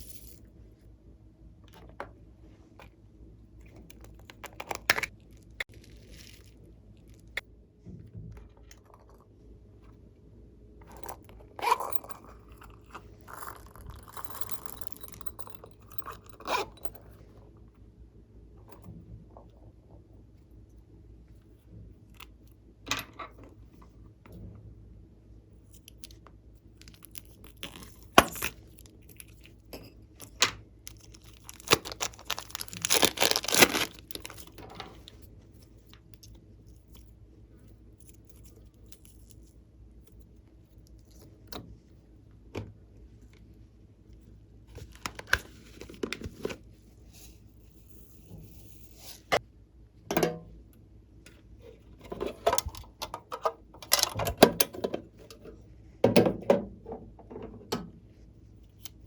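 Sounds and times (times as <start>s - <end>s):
slime crackling: 31.1s - 34.4s.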